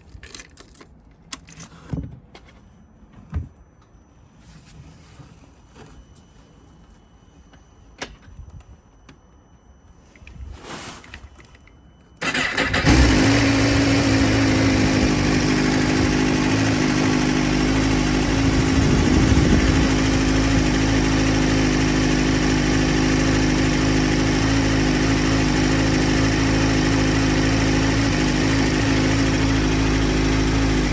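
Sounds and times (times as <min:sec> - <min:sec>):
motorcycle engine starting and idling: 0:12.2 - 0:30.9.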